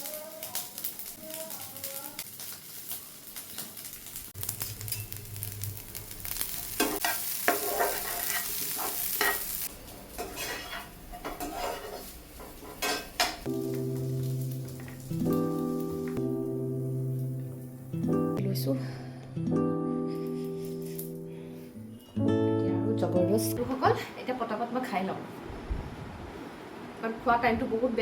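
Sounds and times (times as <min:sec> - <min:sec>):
rice sizzling in a pan: 0:00.0 - 0:18.0
spatula scraping a pan: 0:06.8 - 0:09.6, 0:10.2 - 0:13.5
guitar music: 0:13.4 - 0:24.0.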